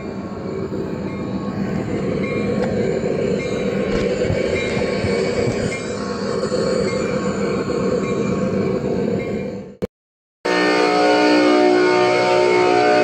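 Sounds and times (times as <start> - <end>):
train rumbling on rails: 0.0 - 9.9.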